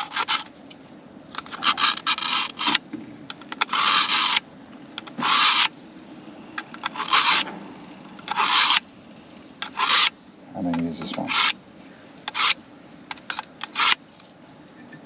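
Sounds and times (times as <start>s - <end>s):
knife rasping through sharpener: 5.0s - 5.7s, 6.8s - 7.4s, 8.3s - 8.8s, 9.6s - 10.1s, 11.2s - 11.6s, 12.3s - 12.6s, 13.2s - 14.0s.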